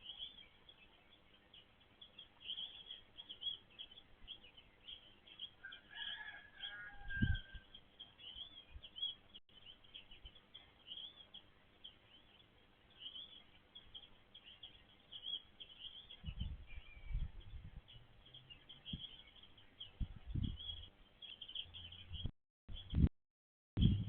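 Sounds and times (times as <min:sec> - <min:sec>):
small birds chirping: 0:00.0 - 0:23.1
lower bird call: 0:05.6 - 0:09.2.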